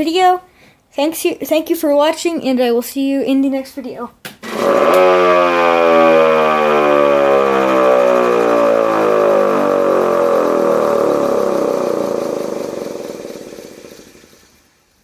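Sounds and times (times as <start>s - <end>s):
siren winding down: 4.4s - 14.7s.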